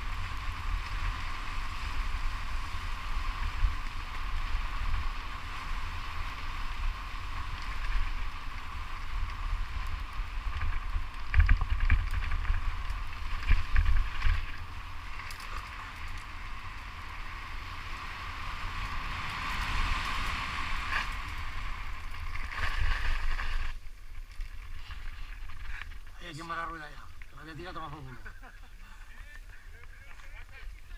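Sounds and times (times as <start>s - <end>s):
bike hum: 0.0s - 30.9s
bike rattling over rough ground: 0.0s - 30.9s.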